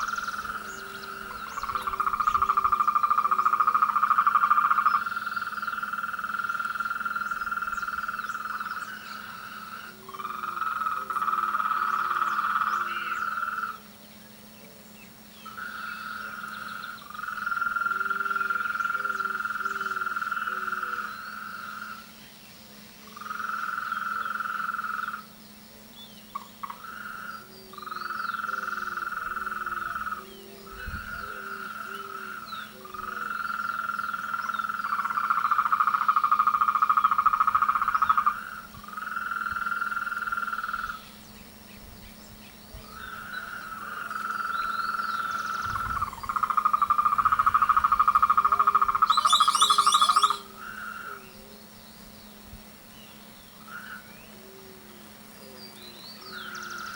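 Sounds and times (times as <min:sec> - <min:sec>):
low frog croaks: 0:00.0 - 0:13.9, 0:15.4 - 0:22.2, 0:23.0 - 0:25.3, 0:26.3 - 0:41.2, 0:42.8 - 0:51.5, 0:53.6 - 0:54.8
frogs trilling: 0:00.0 - 0:52.4, 0:53.0 - 0:56.9.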